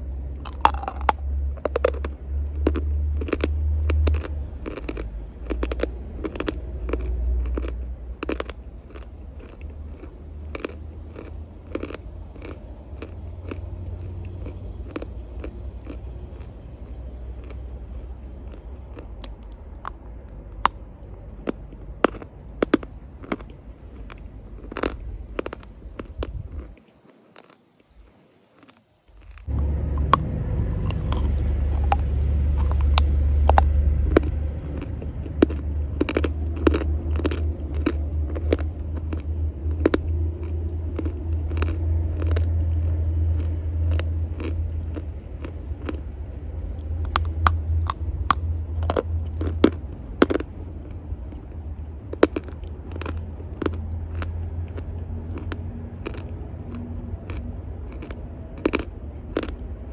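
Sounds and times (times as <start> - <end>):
steady low rumble: 0.0 - 26.8, 29.1 - 59.9
chalk being chewed: 0.0 - 59.9.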